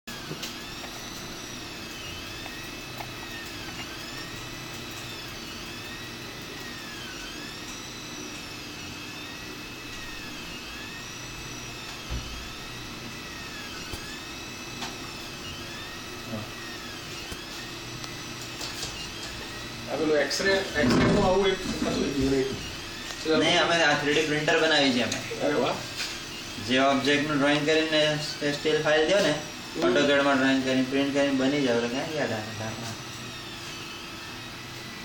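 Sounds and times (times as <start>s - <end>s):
stepper motors whining: 0.1s - 35.0s
steady high tone: 9.4s - 32.9s.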